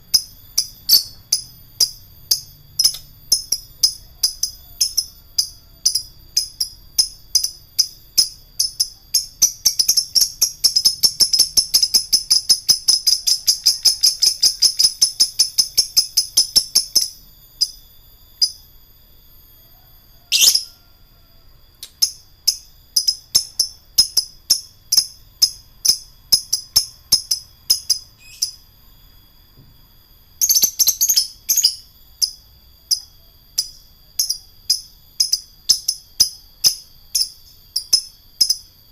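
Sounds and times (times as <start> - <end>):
bird chattering and ticking: 0.1 - 17.8, 20.3 - 20.7, 21.8 - 28.6, 30.4 - 38.7.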